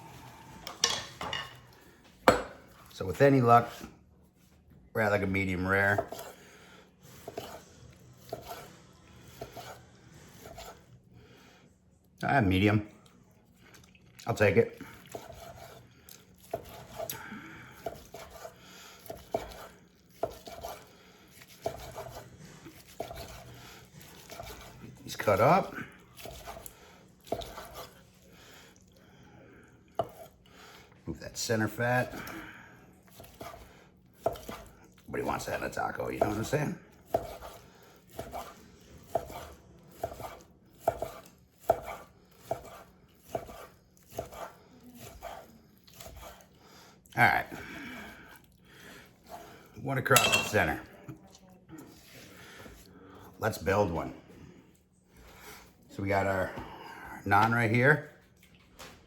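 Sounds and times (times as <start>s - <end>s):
knife chopping on cutting board: 2.2s - 2.7s, 5.9s - 6.4s, 7.1s - 7.6s, 8.2s - 8.7s, 9.3s - 10.8s, 15.1s - 15.8s, 16.4s - 24.8s, 26.2s - 28.0s, 30.0s - 30.3s, 33.1s - 34.7s, 36.1s - 46.5s
knife slicing onto cutting board: 37.1s - 46.4s.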